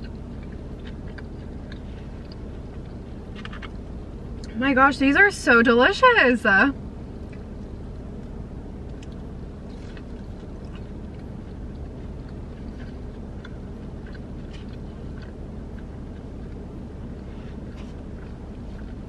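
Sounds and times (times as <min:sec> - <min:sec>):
chewing mouth sounds: 0:00.0 - 0:04.6, 0:07.2 - 0:19.0
low rumble: 0:00.0 - 0:19.0.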